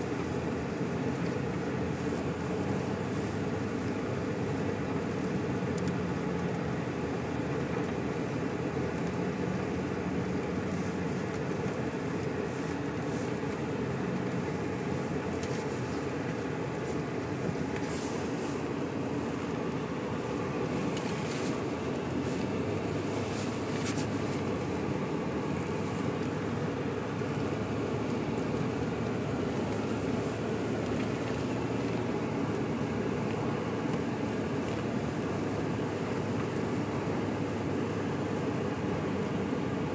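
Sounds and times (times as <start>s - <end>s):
engine and road noise in cabin: 0.0s - 39.9s.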